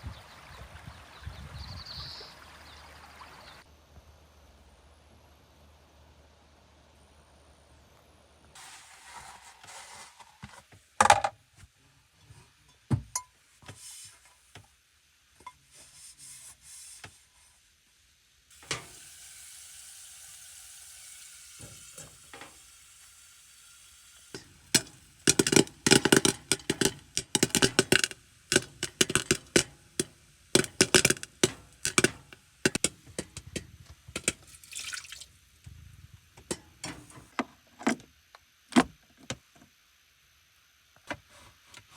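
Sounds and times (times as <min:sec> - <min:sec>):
running water: 0:18.5 - 0:35.7
scattered knocks: 0:24.8 - 0:33.6.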